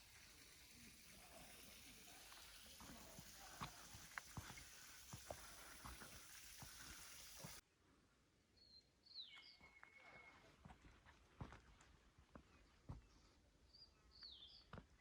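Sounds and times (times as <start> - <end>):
steady hiss: 0.0 - 7.6.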